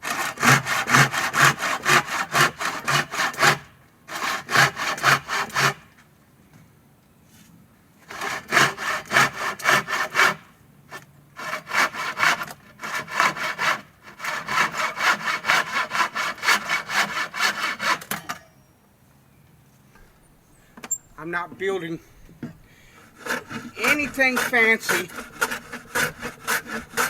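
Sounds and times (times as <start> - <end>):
hand saw cutting wood: 0.0 - 6.0, 8.0 - 18.4, 22.9 - 27.0.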